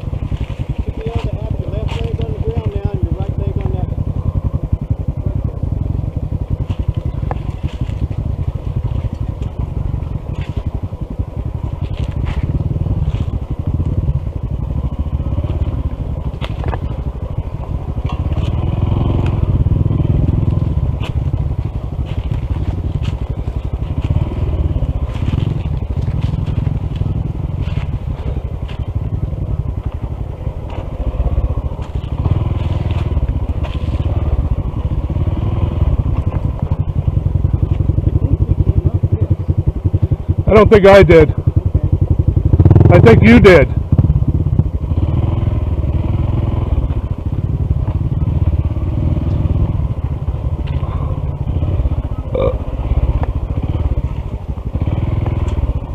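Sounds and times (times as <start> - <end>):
tyres crackling on gravel: 0.0 - 43.9
motorcycle engine rumble: 0.0 - 55.9.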